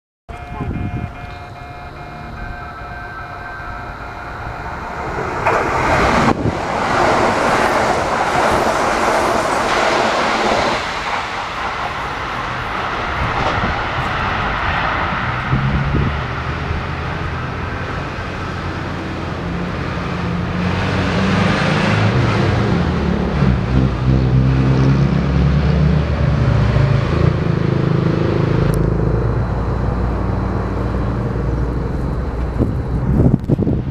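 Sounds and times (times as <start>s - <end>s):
train wheels rolling on rails: 0.3s - 24.2s, 28.7s - 33.9s.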